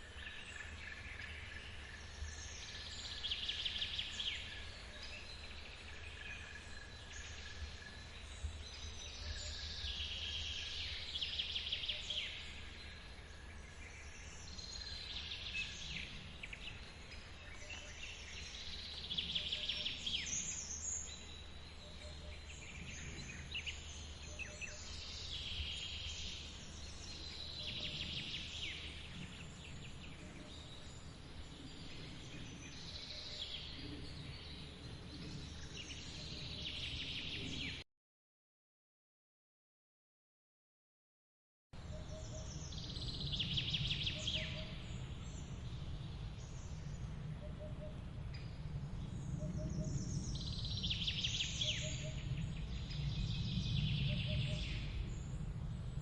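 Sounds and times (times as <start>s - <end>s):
songbirds singing trilled phrases: 41.9s - 55.4s.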